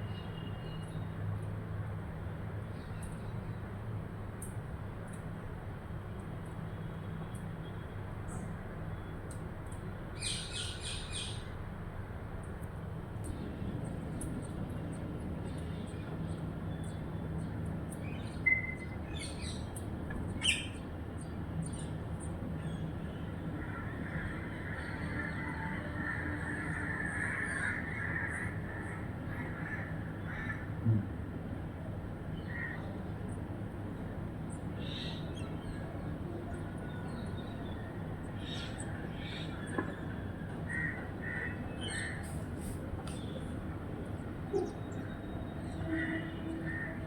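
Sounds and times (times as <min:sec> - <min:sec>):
crow cawing: 0:23.7 - 0:30.7.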